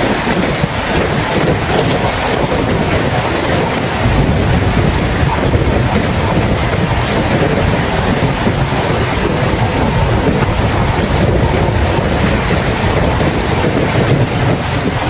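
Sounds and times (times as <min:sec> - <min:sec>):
heavy rain: 0:00.0 - 0:15.0
low rumble: 0:04.0 - 0:14.9.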